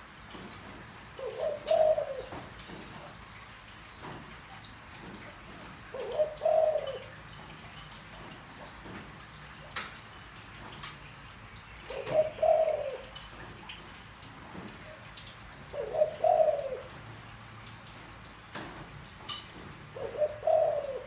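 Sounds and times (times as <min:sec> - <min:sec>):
dove cooing: 0:00.4 - 0:03.0, 0:05.5 - 0:07.6, 0:11.8 - 0:13.6, 0:14.5 - 0:17.2, 0:19.6 - 0:21.0.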